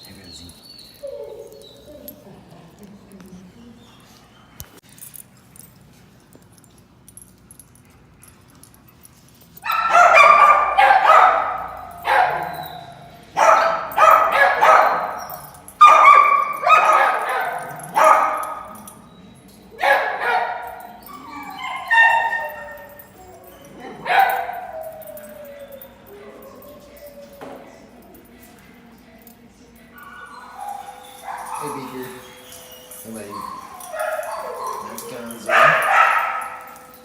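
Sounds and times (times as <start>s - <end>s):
dog barking loudly: 9.6s - 18.8s, 19.8s - 20.8s, 33.8s - 36.6s.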